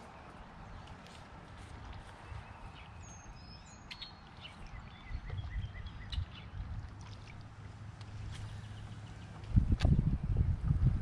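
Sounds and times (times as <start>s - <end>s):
birds chirping and calling: 2.0s - 6.7s, 8.1s - 10.0s
low steady rumble: 4.6s - 11.0s.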